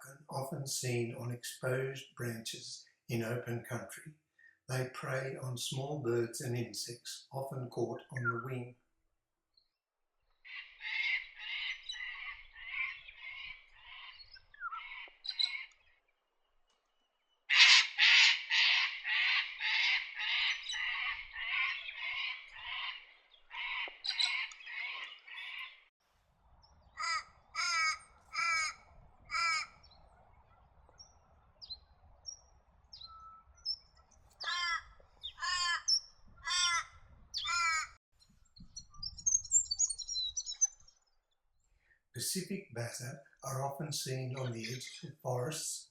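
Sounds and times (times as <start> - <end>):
bird sharp spaced notes: 4.7 - 8.7
bird rapid harsh calls: 17.5 - 25.8, 27.0 - 29.9, 34.4 - 37.9.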